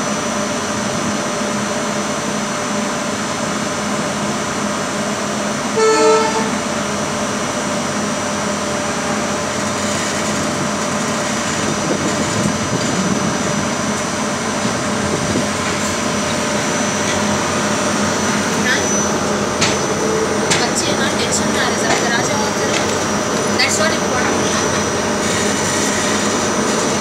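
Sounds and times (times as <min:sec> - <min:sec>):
train coaches rumbling past: 0:00.0 - 0:27.0
short train horn toot: 0:05.7 - 0:06.7.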